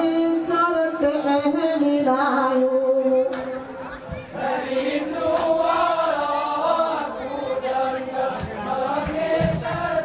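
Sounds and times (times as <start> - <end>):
men chanting in unison: 4.2 - 10.0
body percussion hits: 8.4 - 10.0.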